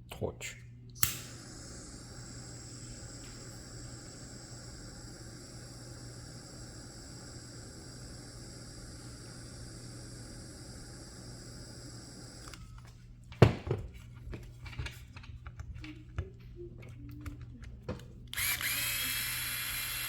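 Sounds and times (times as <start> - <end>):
torch hissing: 1.0 - 12.7, 18.4 - 20.0
mechanical whir with whine: 1.0 - 12.9, 18.3 - 20.0.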